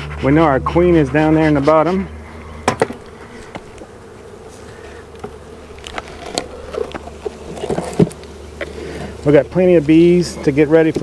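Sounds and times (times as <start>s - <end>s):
honeybees buzzing: 0.0s - 11.0s
sharp knocks: 2.6s - 3.0s.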